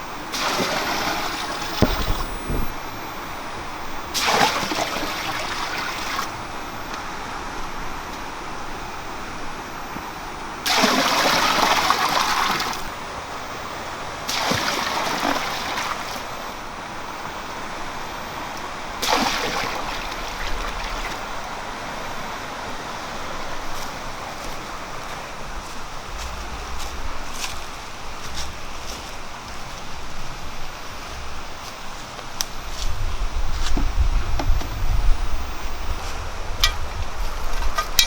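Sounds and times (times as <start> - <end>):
water splashing: 0.0 - 9.6, 10.4 - 32.7
water trickling: 18.6 - 30.3.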